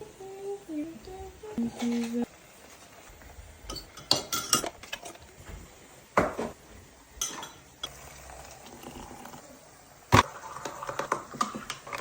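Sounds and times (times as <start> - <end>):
dishes and utensils clinking: 3.6 - 5.2, 7.2 - 7.7.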